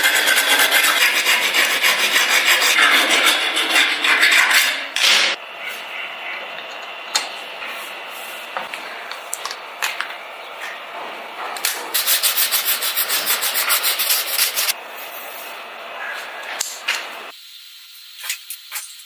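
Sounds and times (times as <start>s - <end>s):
sandpaper rubbing: 0.0s - 4.8s, 11.9s - 15.4s.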